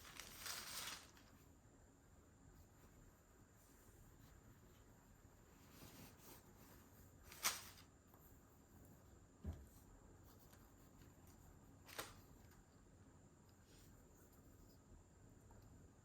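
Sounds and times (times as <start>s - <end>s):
handling rustle: 0.0s - 1.4s, 5.6s - 7.9s.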